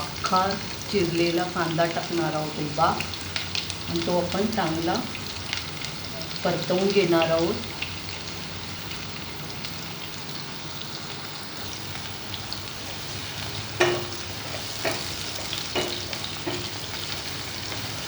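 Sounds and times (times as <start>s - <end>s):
onion sizzling in hot oil: 0.0s - 18.0s
spoon knocking on pan: 13.3s - 18.0s.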